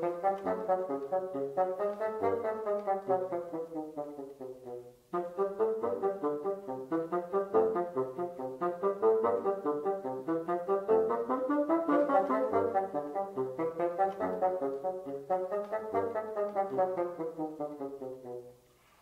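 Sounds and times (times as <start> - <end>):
classical bassoon music: 0.0 - 18.8.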